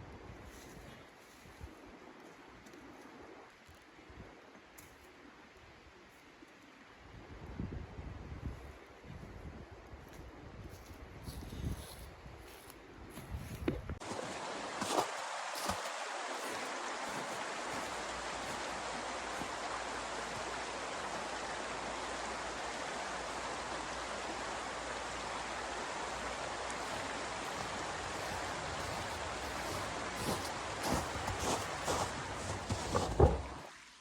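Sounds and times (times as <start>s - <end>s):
steady hiss: 14.0s - 34.0s.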